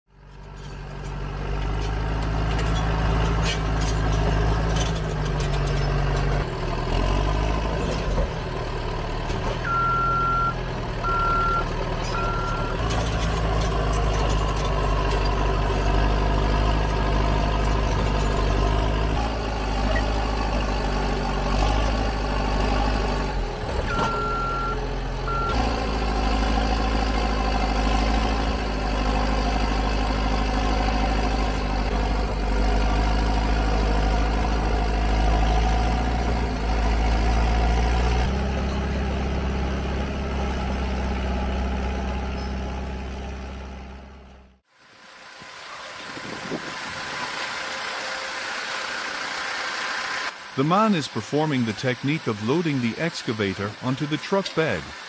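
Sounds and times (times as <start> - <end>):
diesel engine running: 0.1 - 55.0
metal clanks: 0.2 - 6.4, 11.7 - 16.2
reversing alarm beeps: 9.6 - 12.8, 23.9 - 25.6.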